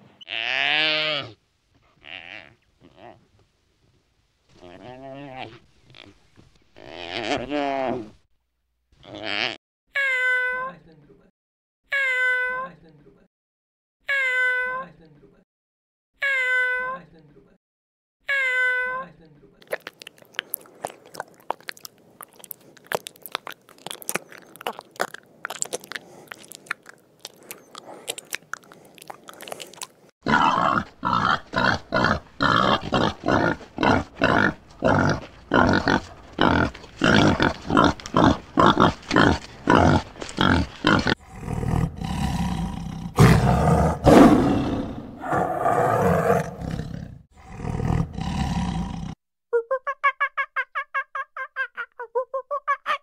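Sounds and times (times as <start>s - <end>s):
wild boars grunting: 19.7s - 49.2s
tiger roaring: 30.2s - 49.2s.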